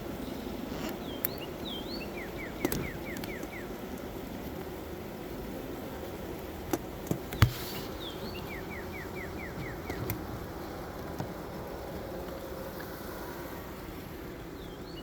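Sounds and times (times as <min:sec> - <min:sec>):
bees humming: 0:00.0 - 0:15.0
bird singing falling notes: 0:01.0 - 0:03.8, 0:07.3 - 0:10.3
hive frames knocking: 0:06.6 - 0:08.6.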